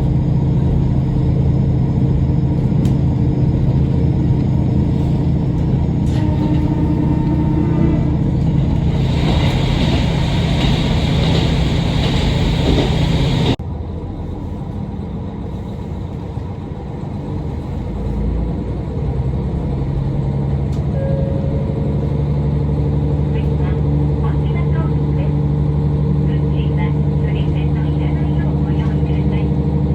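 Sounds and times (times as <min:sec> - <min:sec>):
railcar engine and running gear rumble: 0:00.0 - 0:29.9
train running sound: 0:00.0 - 0:29.9.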